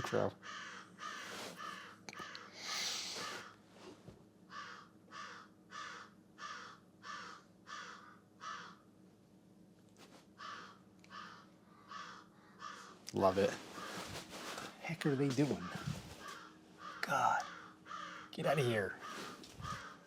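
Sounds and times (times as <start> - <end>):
crows cawing: 0.0 - 3.6, 4.4 - 9.0, 10.3 - 20.0
burst of hissing noise: 2.6 - 3.4.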